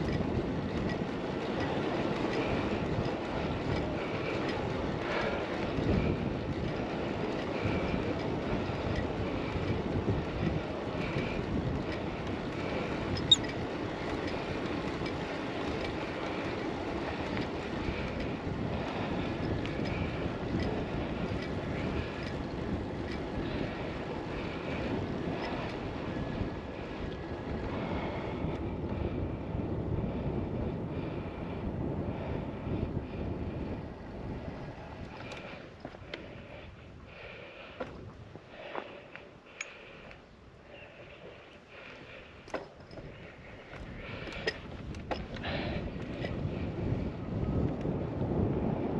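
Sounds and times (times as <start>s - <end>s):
bicycle tyre and road noise: 0.0s - 48.9s
wind on camera microphone: 0.0s - 48.9s.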